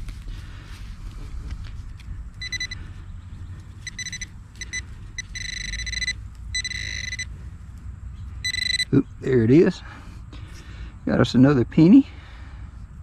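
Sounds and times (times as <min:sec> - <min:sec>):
metal detector pinpointer beeping: 0:02.4 - 0:02.8, 0:03.8 - 0:07.3, 0:08.4 - 0:09.0.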